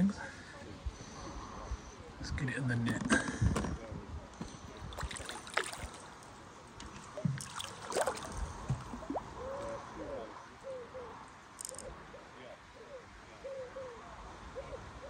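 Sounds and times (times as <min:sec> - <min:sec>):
water splashing and gurgling: 0:04.8 - 0:09.6.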